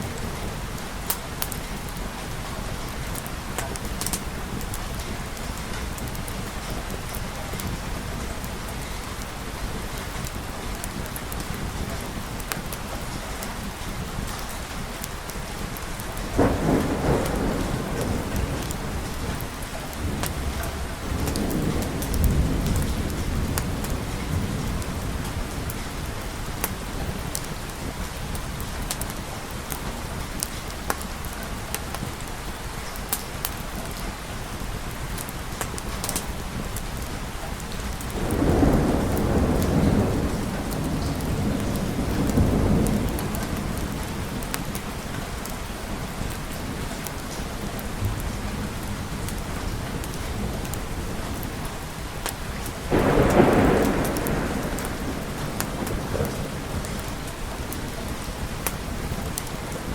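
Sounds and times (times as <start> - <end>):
thunderclap: 0.0 - 29.1, 37.9 - 59.9
rolling thunder rumble: 0.0 - 31.1, 35.1 - 59.9
heavy rain: 0.0 - 59.9.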